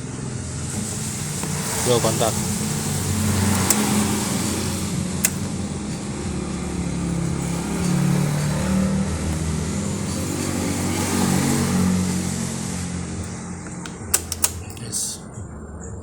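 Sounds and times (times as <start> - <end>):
car engine idling: 0.1 - 16.0
sharp click: 5.2 - 5.6, 13.2 - 14.8.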